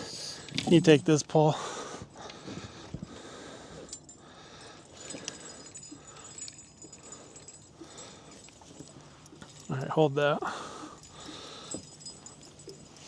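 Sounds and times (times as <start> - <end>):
light metallic jingling: 0.0 - 13.0
fishing gear clicking: 0.2 - 1.1, 3.7 - 9.7.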